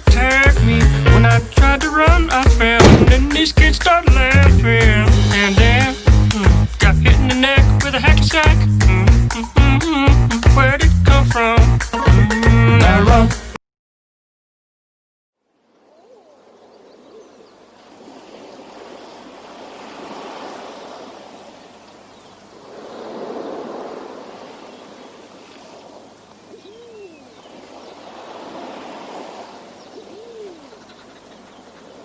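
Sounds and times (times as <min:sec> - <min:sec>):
ocean surf washing in: 0:02.6 - 0:04.3, 0:17.8 - 0:21.7, 0:22.5 - 0:26.5, 0:27.2 - 0:30.2.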